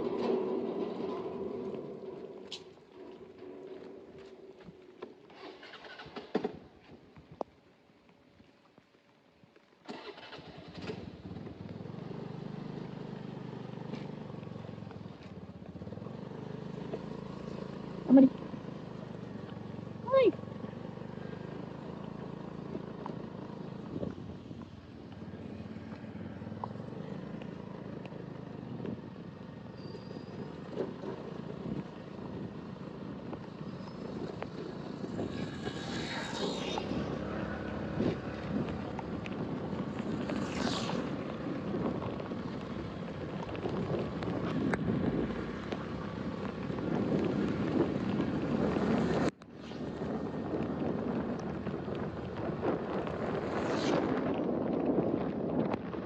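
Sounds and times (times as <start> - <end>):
wind noise on microphone: 23.8 - 24.7, 30.0 - 56.0
hissing swishes: 35.2 - 37.3.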